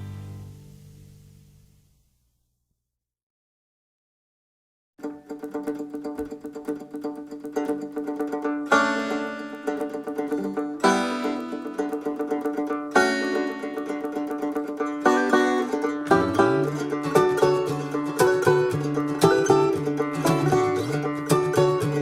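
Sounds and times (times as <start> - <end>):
quickly picked string instruments: 5.0 - 22.0.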